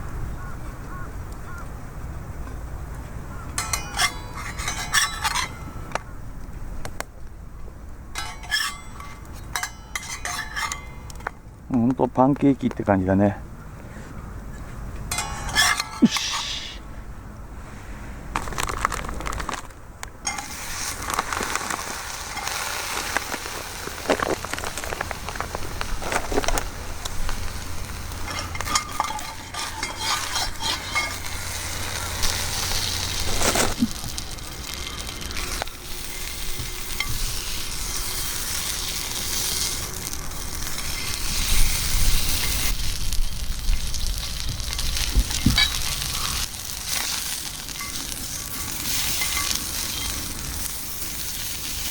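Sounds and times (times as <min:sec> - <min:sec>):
sharp crackles and clicks: 0:03.5 - 0:07.1, 0:18.3 - 0:51.9
pancake batter sizzling in a pan: 0:20.3 - 0:26.0, 0:26.7 - 0:51.9.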